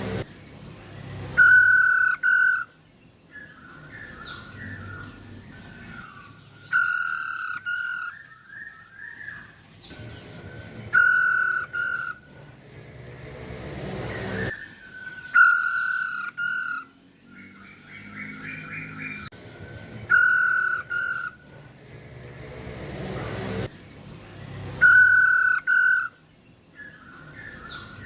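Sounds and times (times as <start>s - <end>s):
bird harsh double calls: 1.4s - 2.7s, 6.7s - 8.3s, 11.0s - 12.2s, 15.3s - 16.9s, 20.1s - 21.4s, 24.8s - 26.2s.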